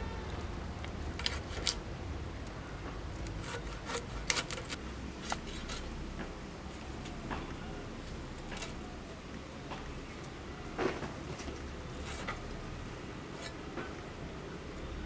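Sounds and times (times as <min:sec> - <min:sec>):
food preparation clicks and scrapes: 0:00.8 - 0:01.8, 0:03.0 - 0:06.2, 0:11.2 - 0:14.0.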